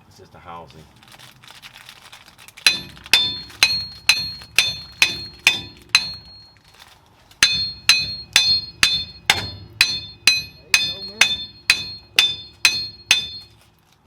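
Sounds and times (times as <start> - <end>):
hammer tapping on metal: 2.7 - 6.5, 7.4 - 13.6.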